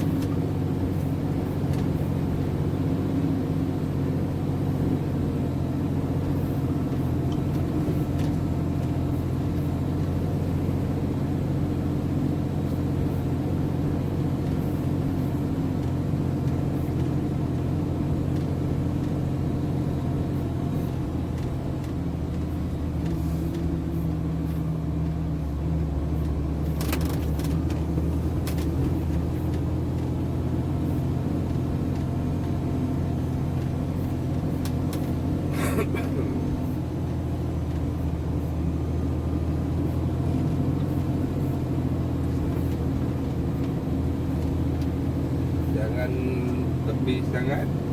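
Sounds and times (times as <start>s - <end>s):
truck diesel engine running: 0.0s - 47.9s.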